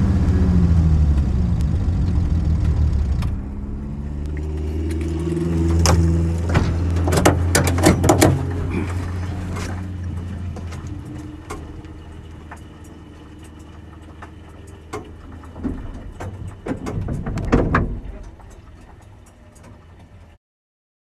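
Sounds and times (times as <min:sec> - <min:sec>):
car engine droning: 0:00.0 - 0:20.4
sharp clicks and knocks: 0:04.2 - 0:08.6, 0:09.5 - 0:20.4.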